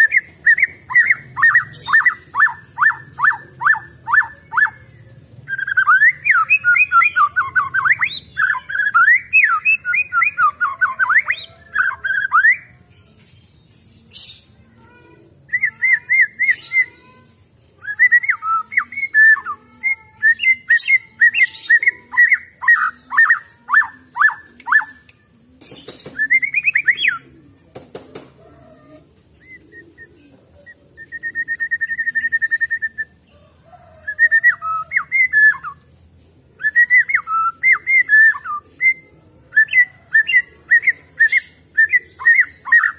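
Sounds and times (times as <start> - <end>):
bird singing whistled phrases: 0.0 - 4.8, 5.5 - 12.7, 15.5 - 17.0, 17.8 - 25.2, 26.0 - 27.2, 29.4 - 33.1, 34.0 - 35.9, 36.6 - 42.9.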